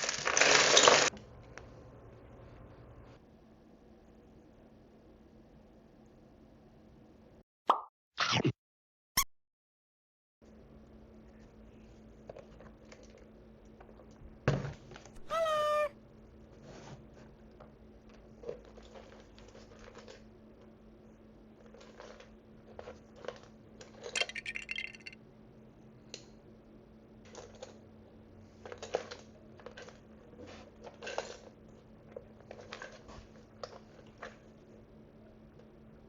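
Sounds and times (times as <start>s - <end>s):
clinking rattle: 24.2s - 25.2s.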